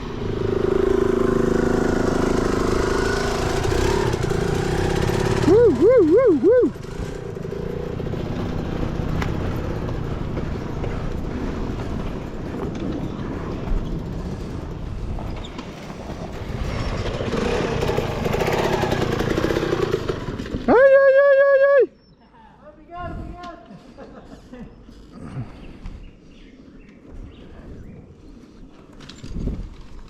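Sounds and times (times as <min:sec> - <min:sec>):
dirt bike engine running: 0:00.0 - 0:20.7.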